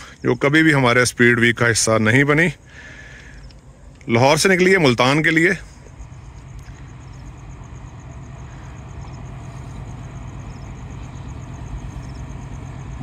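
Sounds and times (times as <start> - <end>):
train rumbling: 4.4 - 13.0.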